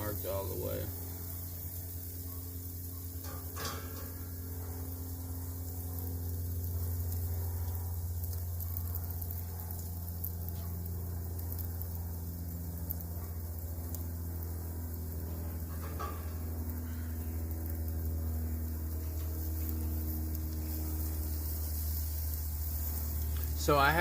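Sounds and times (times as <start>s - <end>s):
chicken sizzling on a grill: 0.0s - 24.0s
constant low hum: 0.0s - 24.0s.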